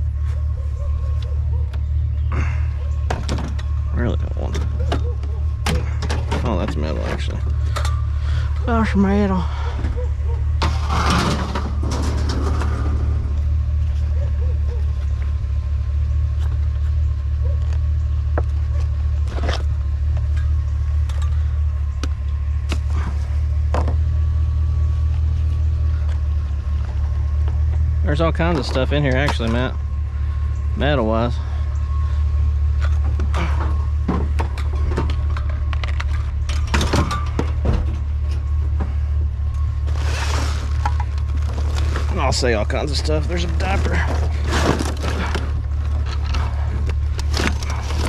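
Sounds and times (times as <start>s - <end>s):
low engine-like rumble: 0.0s - 48.0s
steady low hum: 0.0s - 48.0s
junk knocking and clattering: 3.0s - 8.0s, 9.8s - 13.4s, 32.8s - 39.0s.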